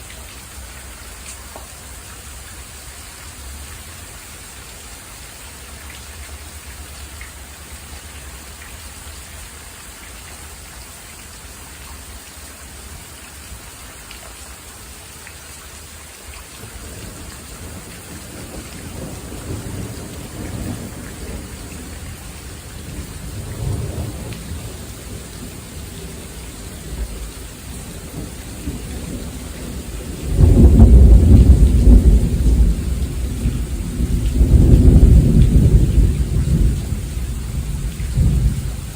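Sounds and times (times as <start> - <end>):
steady rain hiss: 0.0 - 38.9
thunder rumbling: 16.8 - 38.9
loud thunder peal: 28.0 - 38.9.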